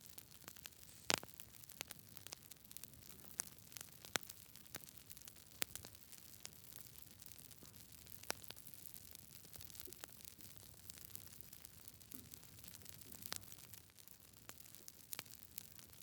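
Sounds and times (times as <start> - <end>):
faint steady hiss: 0.0 - 16.0
wood fire crackling and popping: 0.0 - 16.0.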